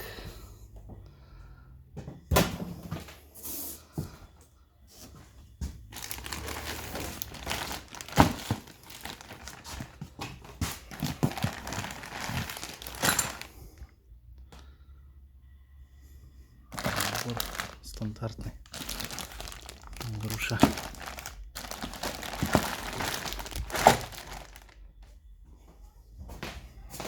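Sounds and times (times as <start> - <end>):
packaging crinkling and rustling: 5.9 - 13.8, 16.7 - 24.9.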